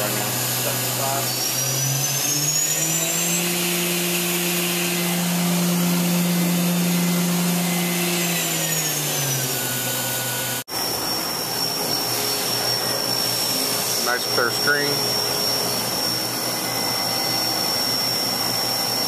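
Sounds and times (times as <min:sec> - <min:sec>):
high-pitched whine: 0:00.0 - 0:19.0
mill spindle whine: 0:00.0 - 0:19.0.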